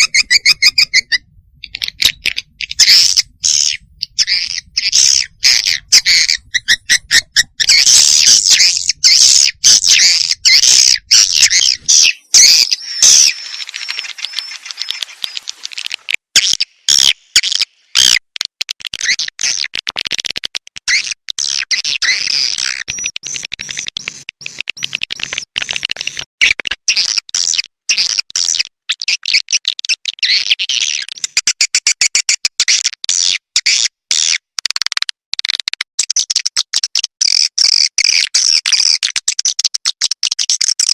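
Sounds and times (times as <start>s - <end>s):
swiftlets twittering: 7.6s - 17.2s.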